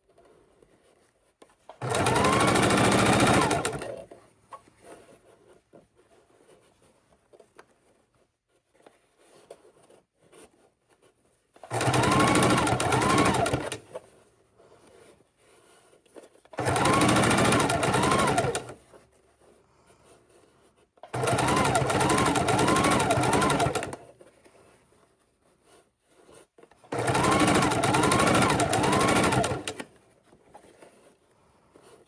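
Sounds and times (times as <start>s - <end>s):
sewing machine stitching: 1.8s - 4.2s, 11.6s - 14.0s, 16.5s - 18.8s, 21.0s - 24.1s, 26.8s - 30.0s.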